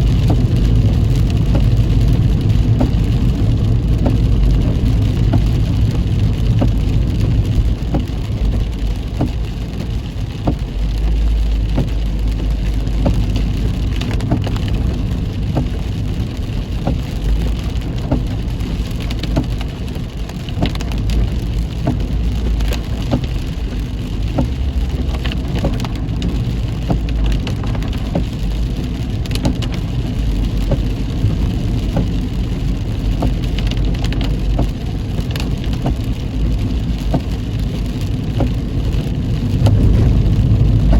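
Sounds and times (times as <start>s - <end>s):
rain drops ticking on car: 0.0s - 40.9s
road and engine rumble: 0.0s - 40.9s.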